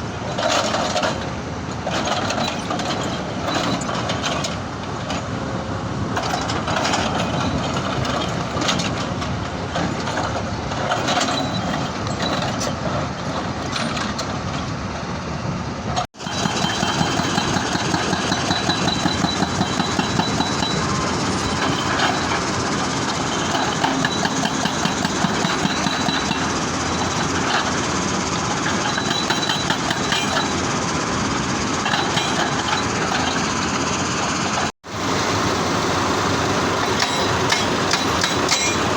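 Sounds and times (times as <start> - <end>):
diesel engine running: 0.0 - 38.9
hydraulic breaker hammering stone: 16.1 - 27.8, 28.6 - 30.7, 31.8 - 33.6, 36.8 - 38.9.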